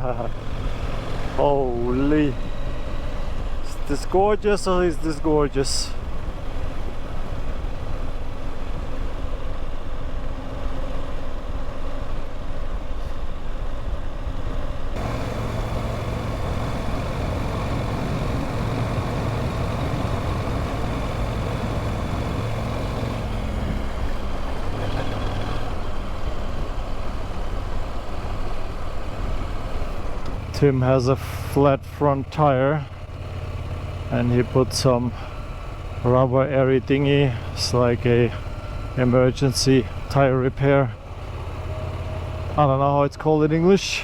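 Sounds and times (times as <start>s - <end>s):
motorcycle engine running: 14.9s - 43.3s.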